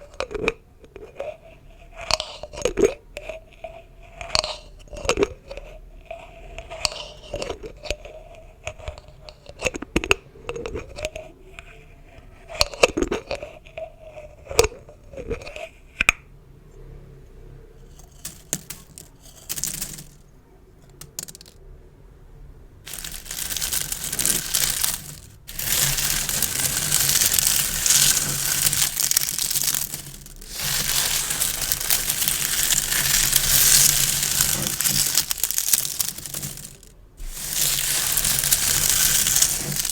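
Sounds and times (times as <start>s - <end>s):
ribbon crinkling: 22.9s - 39.9s
squeaky rubbing of gift bows: 22.9s - 39.9s.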